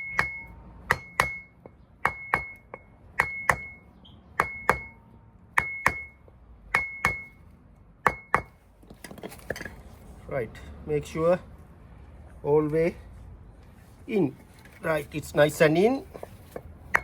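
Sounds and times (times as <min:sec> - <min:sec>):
hammer knocking on wooden block: 0:00.0 - 0:03.8, 0:04.4 - 0:05.0, 0:05.6 - 0:06.1, 0:06.7 - 0:07.3, 0:08.0 - 0:08.6.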